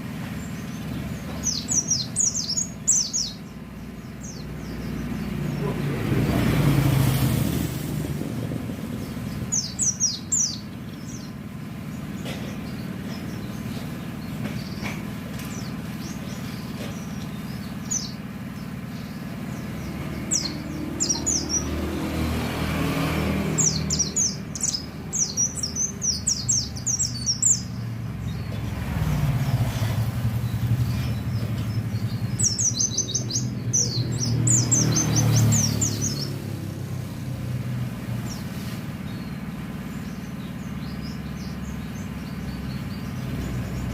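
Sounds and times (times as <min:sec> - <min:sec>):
white-eye chirping: 0:00.0 - 0:07.8, 0:08.9 - 0:43.9
road traffic rumble: 0:00.0 - 0:43.9.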